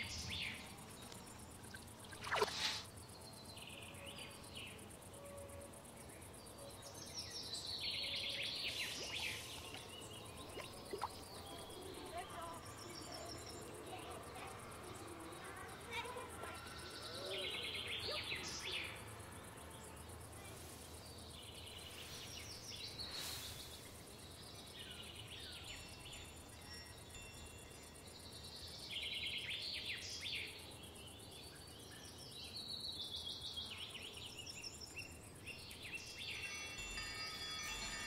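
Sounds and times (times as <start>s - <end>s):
birds chirping trills: 0.0s - 20.0s, 21.0s - 38.0s
faint steady background noise: 0.0s - 38.0s.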